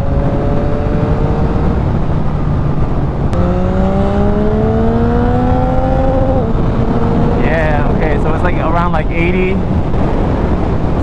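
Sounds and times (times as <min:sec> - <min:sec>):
motorcycle engine accelerating: 0:00.0 - 0:08.4
wind noise: 0:00.0 - 0:11.0.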